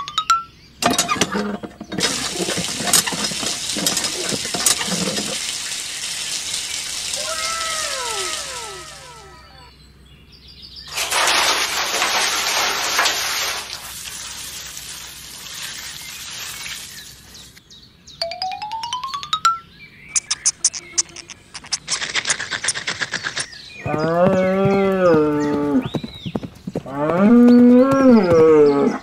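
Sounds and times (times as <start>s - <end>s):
bucket dipped into water: 0.8s - 9.3s
water pouring into pool: 1.9s - 9.7s, 10.9s - 17.6s
bird chirps: 6.5s - 10.9s, 19.1s - 29.0s.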